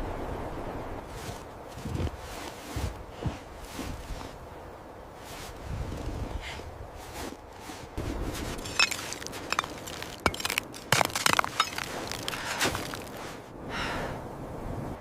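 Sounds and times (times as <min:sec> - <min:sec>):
snow crunching: 0:01.0 - 0:04.6, 0:05.2 - 0:13.5.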